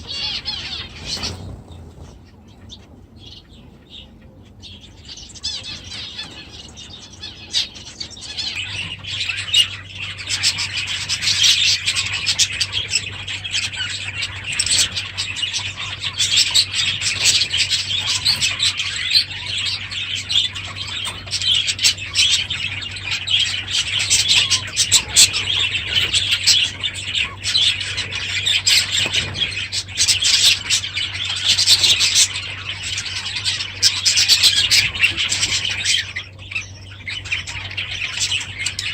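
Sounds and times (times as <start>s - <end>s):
budgerigars chattering: 0.0s - 38.9s
low steady hum: 0.0s - 38.9s.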